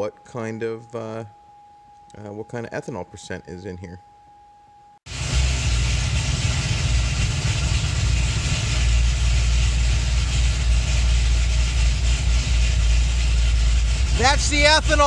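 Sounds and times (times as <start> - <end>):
engine idling with deep rumble: 5.1 - 15.0.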